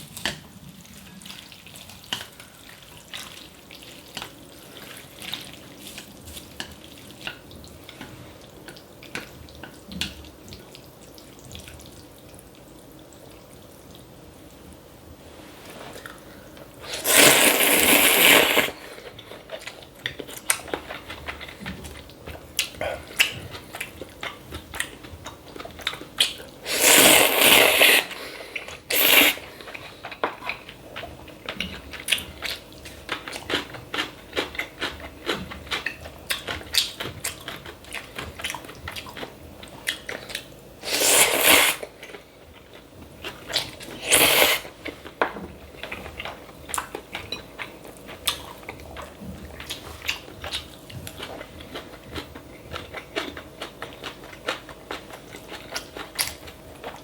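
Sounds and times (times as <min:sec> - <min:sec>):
chewing and crunching: 0:15.9 - 0:57.0
loud noodle slurps: 0:16.8 - 0:19.0, 0:26.6 - 0:29.5, 0:40.8 - 0:41.9, 0:44.0 - 0:44.7.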